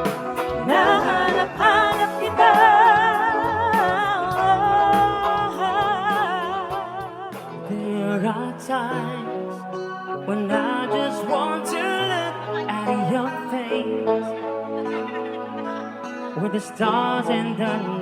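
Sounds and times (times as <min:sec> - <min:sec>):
band playing: 0:00.0 - 0:09.1
person singing with vibrato: 0:00.0 - 0:14.6, 0:16.3 - 0:18.0.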